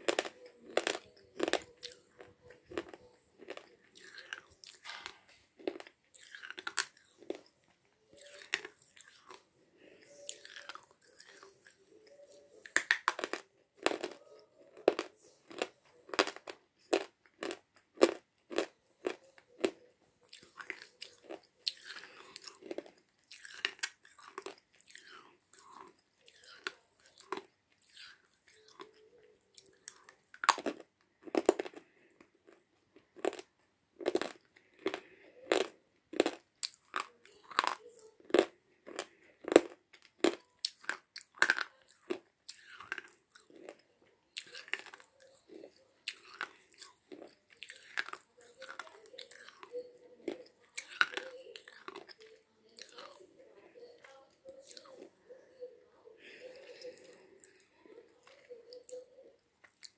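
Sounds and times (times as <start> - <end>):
crisp crunches of biting: 0.0 - 7.5, 10.1 - 28.9, 29.6 - 43.8
quiet chewing: 0.0 - 59.9.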